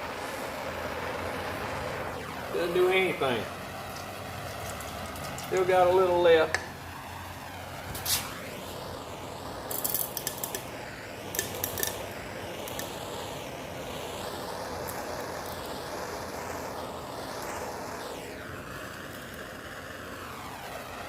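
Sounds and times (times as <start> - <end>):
gas torch flame hissing: 0.0 - 21.0
clicking and crackling: 3.9 - 5.7, 9.7 - 10.7, 11.3 - 13.0.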